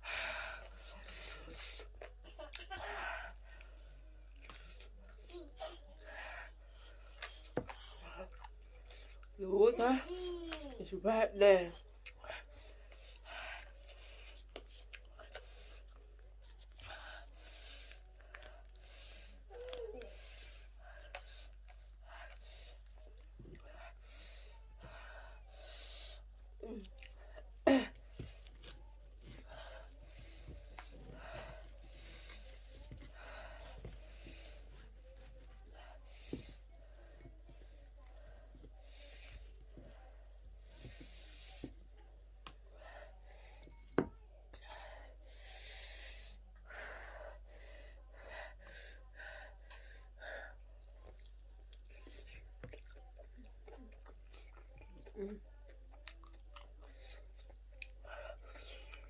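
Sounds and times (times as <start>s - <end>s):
person chewing: 3.6s - 5.4s, 6.7s - 9.4s, 13.1s - 16.9s, 26.4s - 35.6s, 51.0s - 55.1s, 55.9s - 59.0s
hissy breaths: 16.8s - 26.5s, 44.6s - 50.7s
woman panting: 29.4s - 34.9s, 44.6s - 50.6s.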